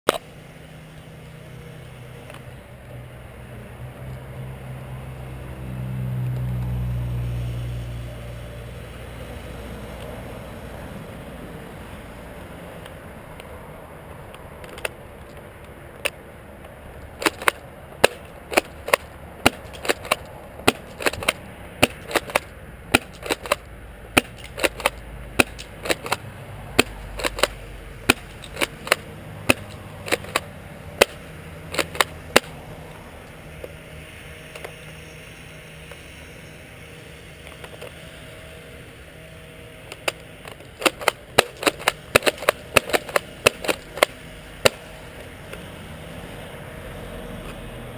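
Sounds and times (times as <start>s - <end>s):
airsoft shotgun firing and cycling: 17.2s - 26.2s, 26.8s - 32.6s, 39.9s - 45.2s.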